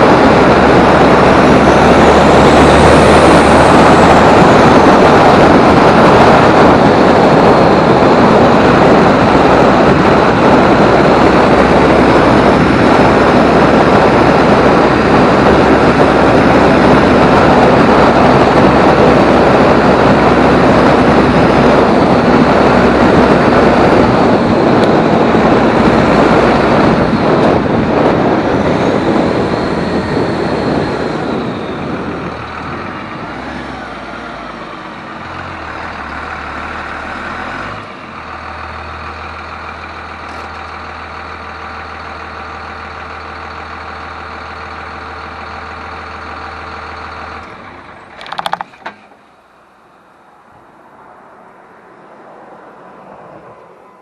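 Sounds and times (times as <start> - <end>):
diesel engine running loud: 0.0 - 54.0.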